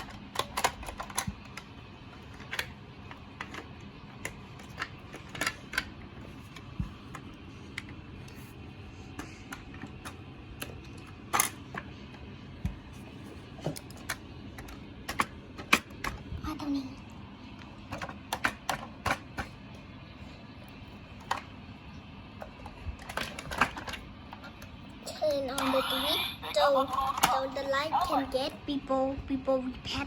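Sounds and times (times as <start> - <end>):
plastic toy parts clicking: 0.0 - 1.7, 2.3 - 5.9.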